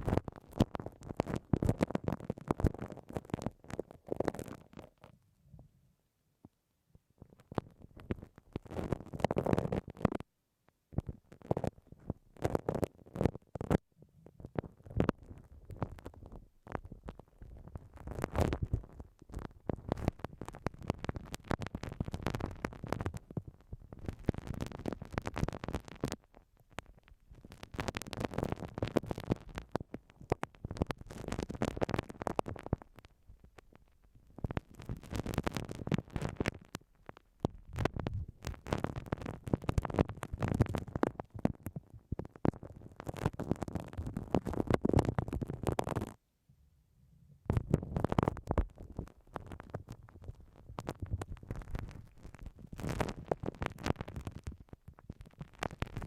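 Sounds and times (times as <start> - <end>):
spiky ball rubbing on microphone: 47.5 - 56.0.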